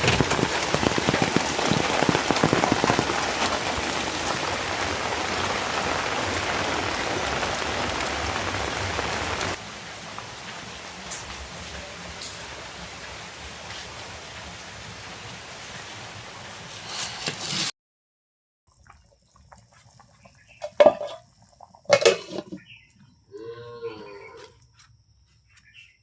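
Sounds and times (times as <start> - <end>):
rain falling: 0.0 - 17.1.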